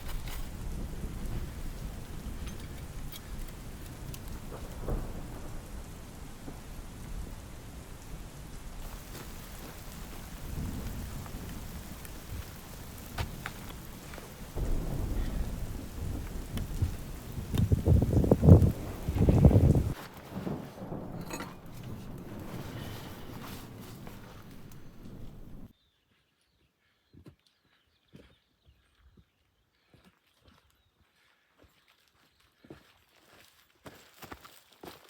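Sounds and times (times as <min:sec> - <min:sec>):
low rolling thunder: 0:00.0 - 0:25.7
rain drop hits: 0:00.0 - 0:25.7
steady rain falling: 0:00.0 - 0:25.7.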